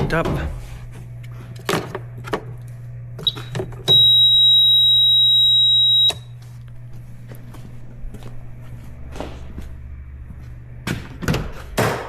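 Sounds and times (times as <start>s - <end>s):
high-pitched electronic beep: 3.3s - 6.2s.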